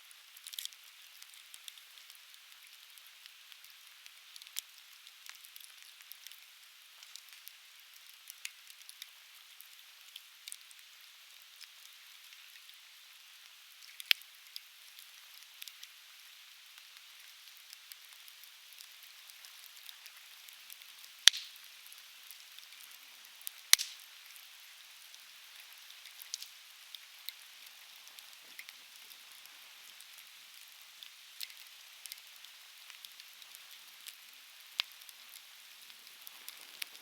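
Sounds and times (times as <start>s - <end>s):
steady fire hiss: 0.0s - 37.0s
fire crackling: 13.8s - 37.0s
loud sharp pops: 23.7s - 24.0s.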